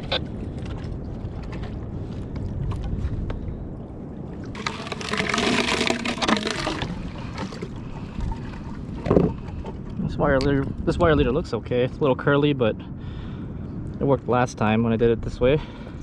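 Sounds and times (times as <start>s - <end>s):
water and wind rumble: 0.0s - 16.0s
water splashing: 4.4s - 8.8s.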